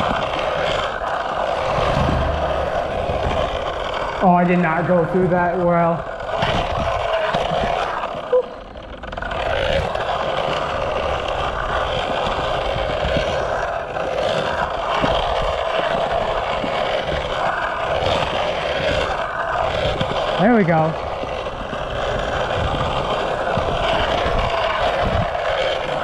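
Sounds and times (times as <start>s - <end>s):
skateboard wheels rolling on concrete: 0.0s - 26.0s.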